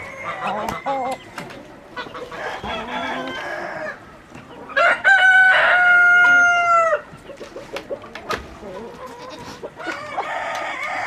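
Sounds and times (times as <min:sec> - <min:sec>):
chicken calls: 0:00.0 - 0:11.0
rooster crowing: 0:02.4 - 0:04.0, 0:04.8 - 0:07.0.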